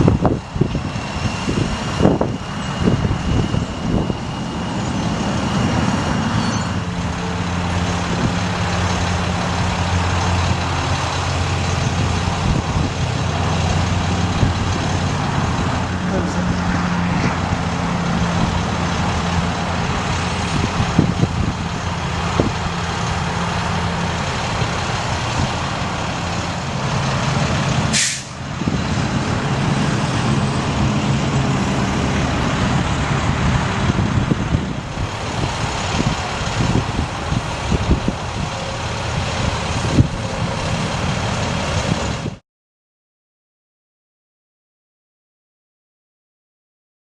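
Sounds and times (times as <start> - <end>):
diesel truck engine running: 0.0 - 42.4
short sharp hiss: 27.9 - 28.4.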